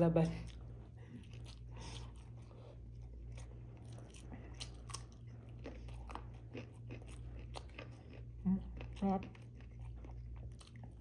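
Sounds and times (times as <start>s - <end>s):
steady low hum: 0.0s - 11.0s
close chewing: 0.2s - 11.0s.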